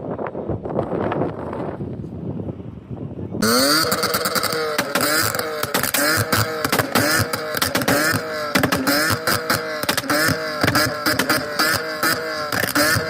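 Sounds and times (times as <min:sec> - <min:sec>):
car engine revving: 0:03.4 - 0:13.0
sharp exhaust pops: 0:03.4 - 0:13.0.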